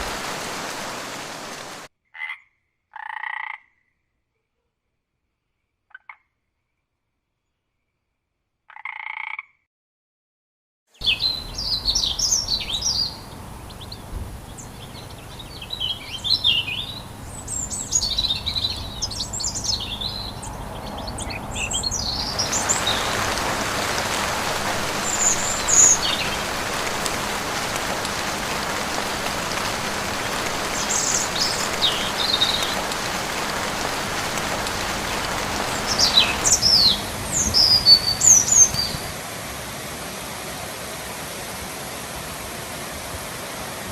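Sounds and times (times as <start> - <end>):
rain hiss: 0.0 - 1.9, 11.0 - 43.9
forest birds chirping and whistling: 11.0 - 39.1.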